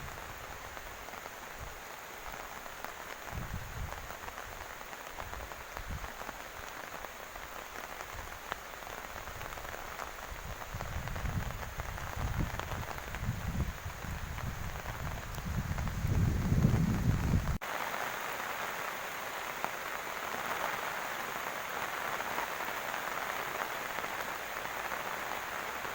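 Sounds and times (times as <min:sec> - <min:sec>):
heavy rain falling: 0:00.0 - 0:25.9
wind buffeting the microphone: 0:03.3 - 0:04.6, 0:10.3 - 0:17.6.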